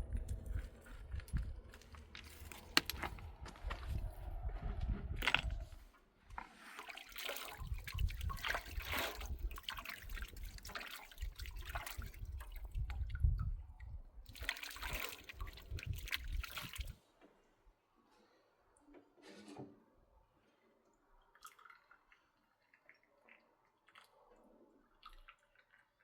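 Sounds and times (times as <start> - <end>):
low rumble: 0.0 - 5.8
water pouring and splashing: 6.6 - 17.0, 21.3 - 24.2.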